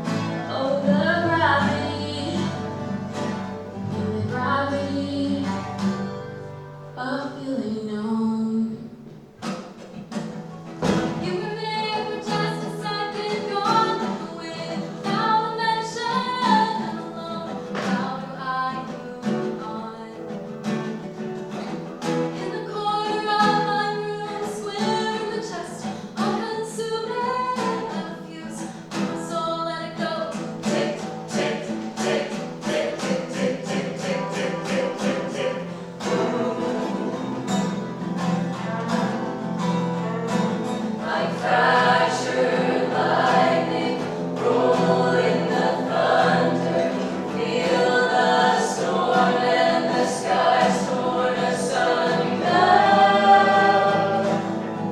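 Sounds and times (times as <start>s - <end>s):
acoustic guitar: 0.0s - 54.9s
person singing: 29.6s - 37.5s.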